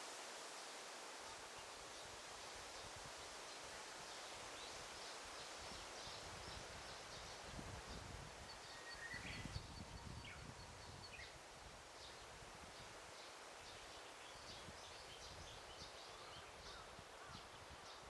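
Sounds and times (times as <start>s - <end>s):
rustling leaves: 0.0s - 18.0s
small birds chirping: 4.0s - 11.4s.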